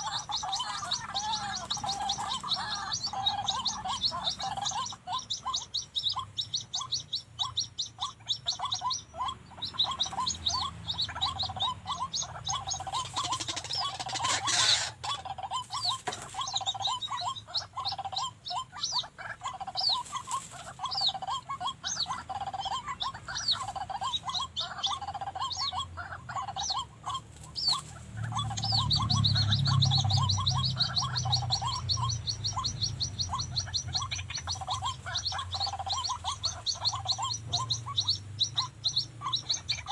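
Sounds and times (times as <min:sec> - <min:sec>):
high bird chirping: 0:00.0 - 0:39.9
waterhens calling: 0:00.0 - 0:39.9.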